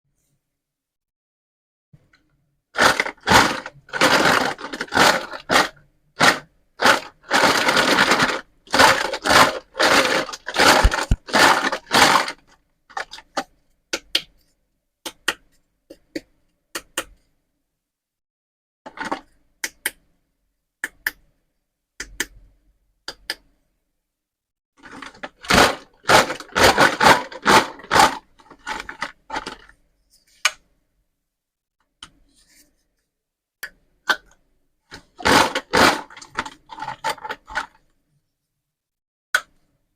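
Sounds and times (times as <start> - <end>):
plastic toys being handled: 2.8 - 13.6, 18.9 - 19.4, 24.8 - 30.6, 34.2 - 37.9.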